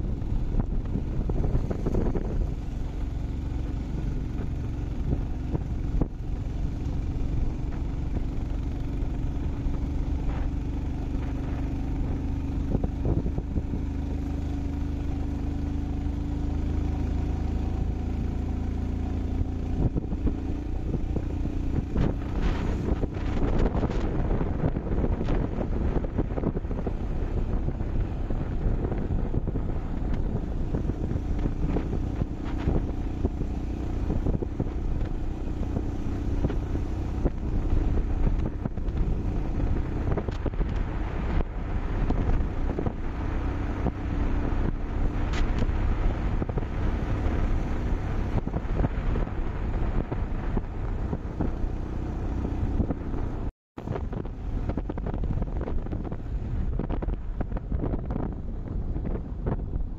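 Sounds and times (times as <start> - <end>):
motorcycle engine: 0.0 - 59.9
wind buffeting microphone: 0.0 - 59.9.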